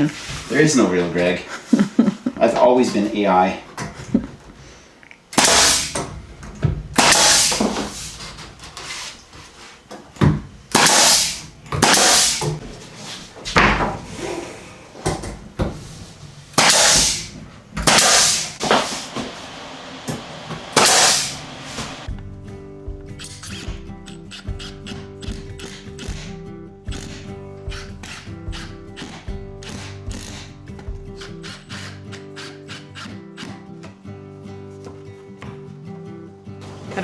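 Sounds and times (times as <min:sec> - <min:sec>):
wood knocks and scrapes: 0:06.2 - 0:22.1.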